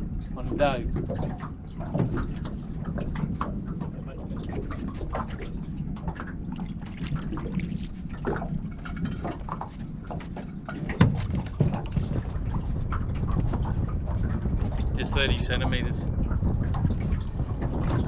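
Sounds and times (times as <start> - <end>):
water splashing: 0.0 - 18.0
wind rumble on microphone: 0.0 - 18.0
knocks on a small boat: 9.1 - 14.8.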